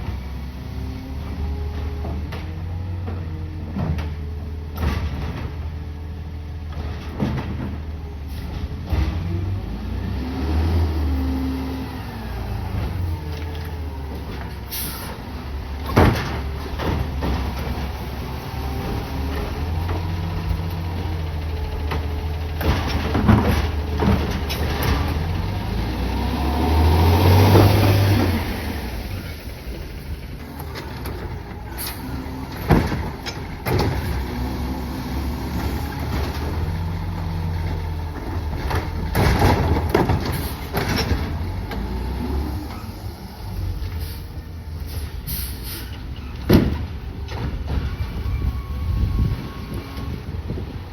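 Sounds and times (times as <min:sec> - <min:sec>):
garbage truck engine revving: 0:00.3 - 0:50.9.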